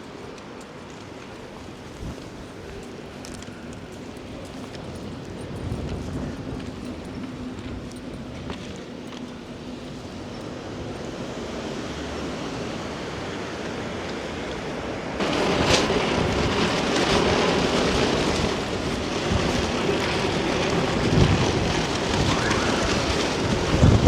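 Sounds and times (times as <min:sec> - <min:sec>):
rain hissing: 0:15.2 - 0:24.0.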